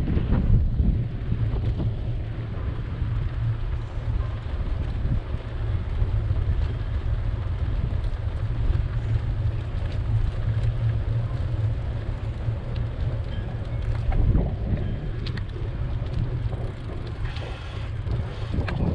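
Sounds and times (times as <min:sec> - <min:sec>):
wind buffeting microphone: 0:00.0 - 0:18.9
faint ticks: 0:03.7 - 0:18.9
bicycle ride hiss: 0:17.2 - 0:18.7.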